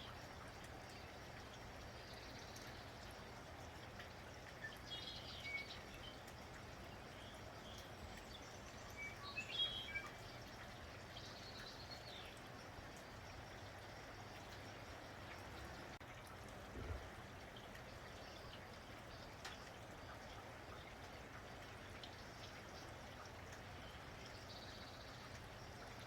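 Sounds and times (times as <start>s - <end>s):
small birds chirping: 0.0s - 16.0s, 21.7s - 26.0s
faint rain: 0.0s - 26.0s.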